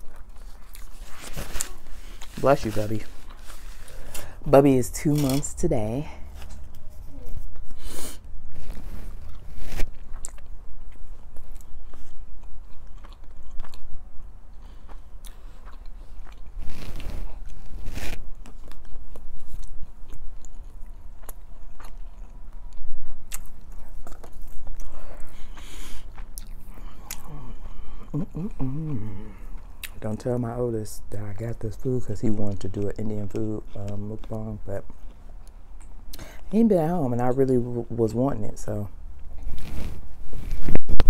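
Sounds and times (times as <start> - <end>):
person chewing food: 0.0 - 4.4, 6.2 - 30.4, 32.4 - 36.5.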